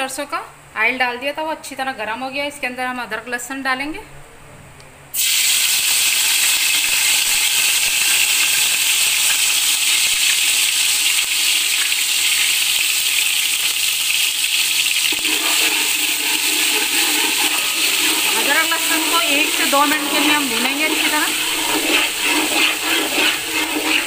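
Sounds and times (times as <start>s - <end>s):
paste sizzling in hot oil: 5.2s - 24.0s.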